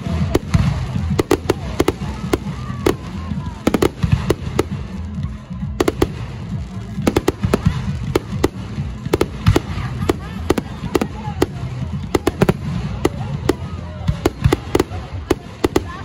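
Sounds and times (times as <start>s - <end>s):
fireworks bursting with sharp bangs: 0.0s - 16.0s.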